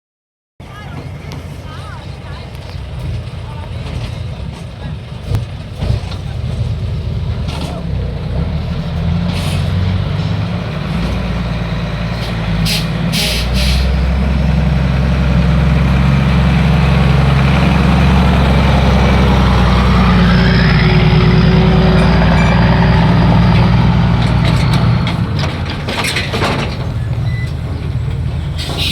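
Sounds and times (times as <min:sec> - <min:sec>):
diesel truck engine running: 0:00.6 - 0:28.9
air hissing: 0:12.2 - 0:14.0.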